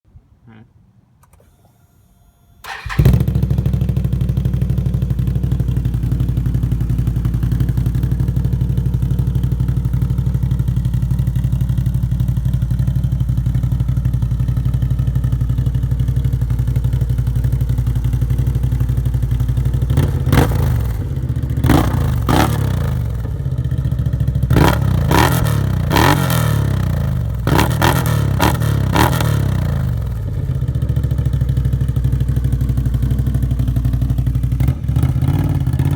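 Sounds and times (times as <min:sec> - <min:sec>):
engine throttle blips: 0:01.2 - 0:04.1
engine idling: 0:01.2 - 0:26.0, 0:29.5 - 0:35.9.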